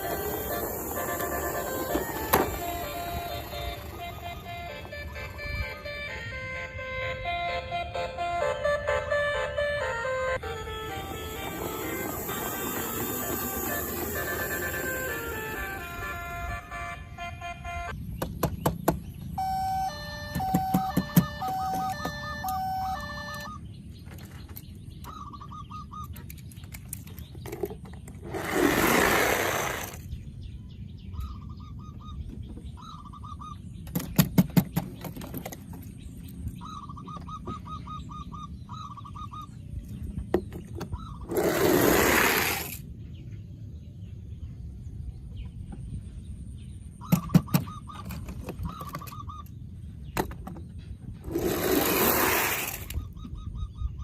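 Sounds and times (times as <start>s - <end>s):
toy chirping beeps: 0.0s - 17.9s, 19.4s - 23.6s.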